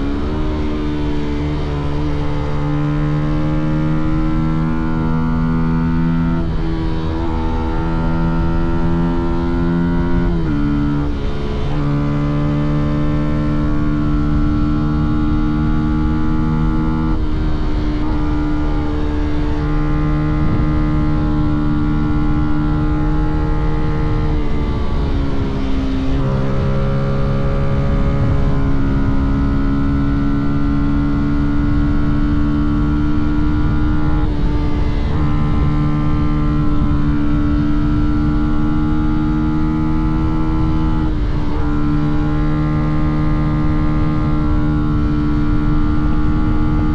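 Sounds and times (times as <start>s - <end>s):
motorcycle engine cruising: 0.0s - 46.9s.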